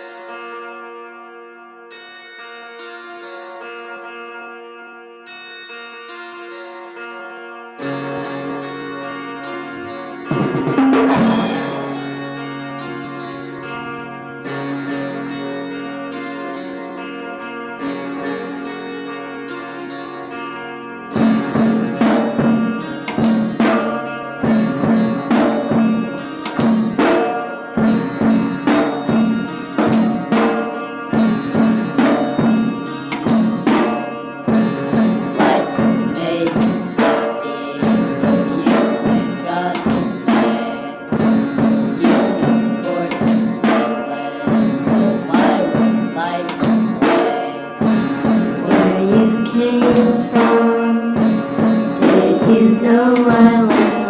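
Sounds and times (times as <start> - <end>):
hand drum beat: 41.2 - 54.0.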